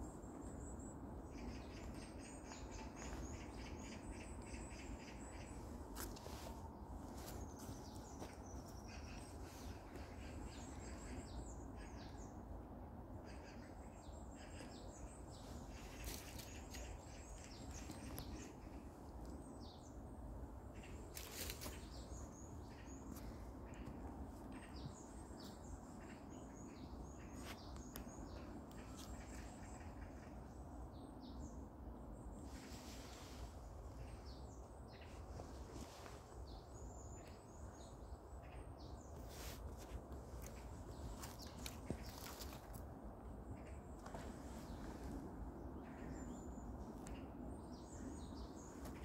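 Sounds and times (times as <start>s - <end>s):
low outdoor rumble: 0.0s - 49.0s
small birds chirping: 32.2s - 42.9s.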